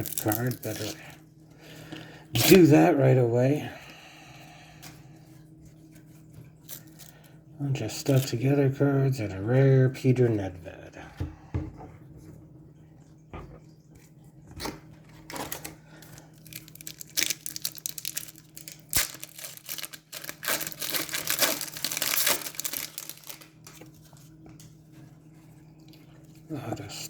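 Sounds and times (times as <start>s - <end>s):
card wrapper crinkling and tearing: 0.0s - 1.0s, 15.2s - 24.4s.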